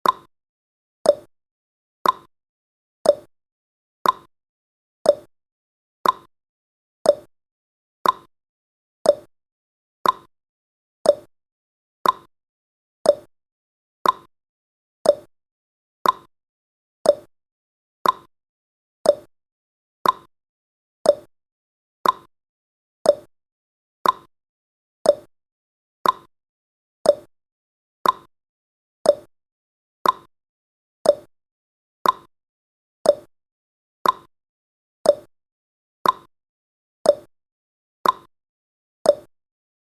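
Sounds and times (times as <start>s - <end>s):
clock tick-tock: 0.0s - 0.3s, 1.0s - 1.3s, 2.0s - 2.3s, 3.0s - 3.3s, 4.0s - 4.3s, 5.0s - 5.3s, 6.0s - 6.3s, 7.0s - 7.3s, 8.0s - 8.3s, 9.0s - 9.3s, 10.0s - 10.3s, 11.0s - 11.3s, 12.0s - 12.3s, 13.0s - 13.3s, 14.0s - 14.3s, 15.0s - 15.3s, 16.0s - 16.3s, 17.0s - 17.3s, 18.0s - 18.3s, 19.0s - 19.3s, 20.0s - 20.3s, 21.0s - 21.3s, 22.0s - 22.3s, 23.0s - 23.3s, 24.0s - 24.3s, 25.0s - 25.3s, 26.0s - 26.3s, 27.0s - 27.3s, 28.0s - 28.3s, 29.0s - 29.3s, 30.0s - 30.3s, 31.0s - 31.3s, 32.0s - 32.3s, 33.0s - 33.3s, 34.0s - 34.3s, 35.0s - 35.3s, 36.0s - 36.3s, 37.0s - 37.3s, 38.0s - 38.3s, 39.0s - 39.4s.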